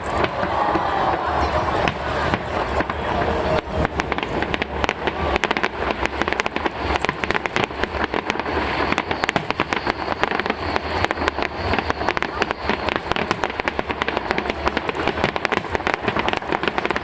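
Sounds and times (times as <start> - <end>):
low rumble: 0.0 - 8.0
fireworks bangs and crackles: 0.0 - 17.0.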